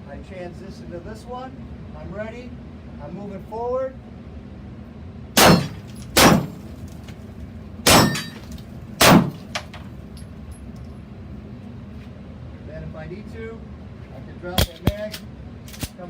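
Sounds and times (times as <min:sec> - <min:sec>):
gunshots: 0:05.4 - 0:06.7, 0:07.9 - 0:09.7, 0:14.6 - 0:15.2
metallic ring of steel targets: 0:05.4 - 0:06.8, 0:07.9 - 0:09.8, 0:14.6 - 0:16.0.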